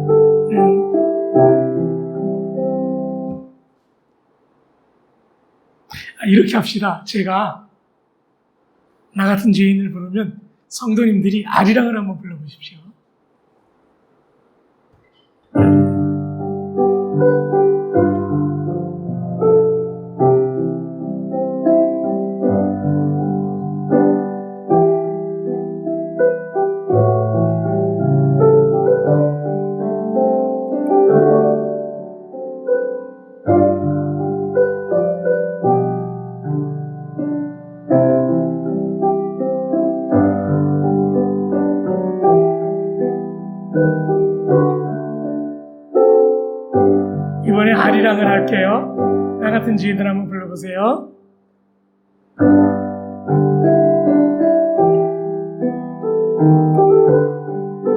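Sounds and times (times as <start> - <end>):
piano playing hymn chords: 0.0 - 3.6, 15.5 - 51.2, 52.4 - 57.9.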